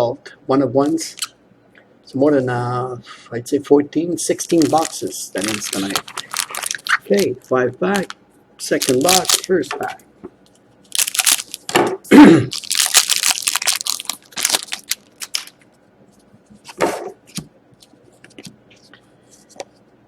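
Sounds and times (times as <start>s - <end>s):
wrapper tearing and crinkling: 4.4s - 7.4s, 8.0s - 9.5s, 10.9s - 11.7s, 12.5s - 15.6s.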